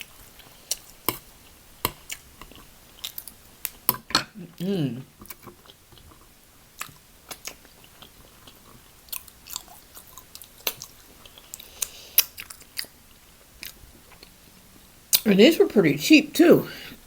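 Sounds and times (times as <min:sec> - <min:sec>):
person chewing food: 0:00.0 - 0:14.4.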